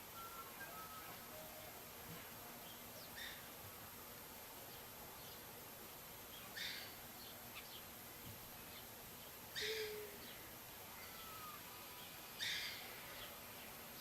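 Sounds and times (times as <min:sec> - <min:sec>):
background hiss: 0:00.0 - 0:14.0
faint bird chirps and whistles: 0:00.1 - 0:01.6, 0:11.0 - 0:13.4.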